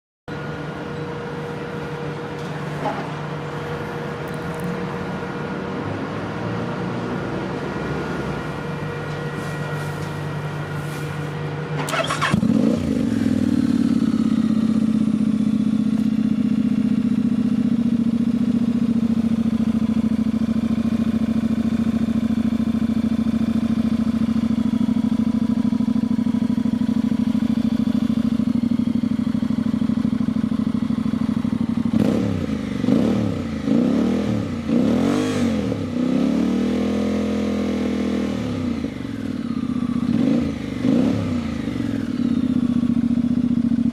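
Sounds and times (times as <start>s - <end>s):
motorcycle engine idling: 0.3s - 35.0s, 35.8s - 43.9s
engine revving in throttle blips: 5.5s - 14.6s, 31.9s - 42.4s.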